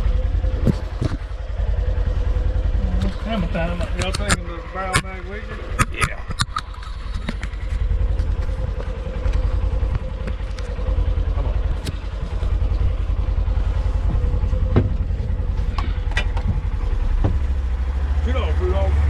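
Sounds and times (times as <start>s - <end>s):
vehicle engine throbbing: 0.0s - 19.0s
short knocks and rattles: 14.0s - 17.6s.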